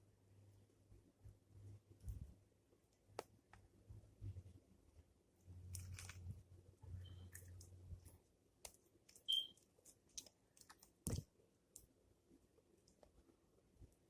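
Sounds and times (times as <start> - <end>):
short high beep: 9.3 - 9.6.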